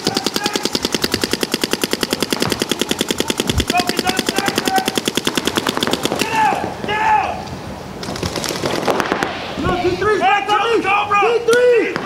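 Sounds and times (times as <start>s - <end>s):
paintball markers firing rapidly: 0.0s - 6.6s
faint distant shouts: 6.1s - 7.5s.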